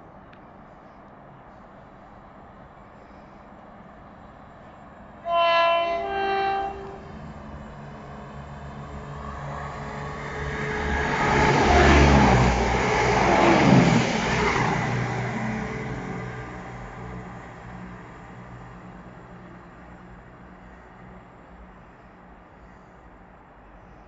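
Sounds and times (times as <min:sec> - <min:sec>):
train engine and wheel rumble: 0:00.0 - 0:24.0
two-tone train horn: 0:05.2 - 0:07.1.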